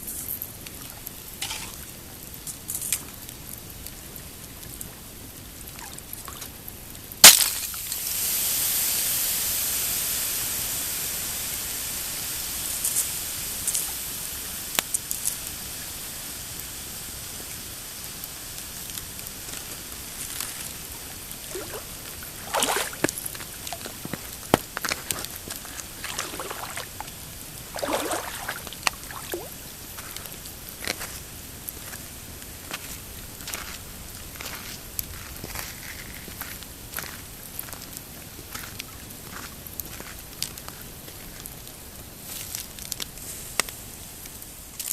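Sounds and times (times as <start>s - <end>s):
campfire crackling: 0.0s - 44.9s
loud sharp pop: 7.2s - 7.8s
long hiss: 7.2s - 39.0s, 40.4s - 44.9s.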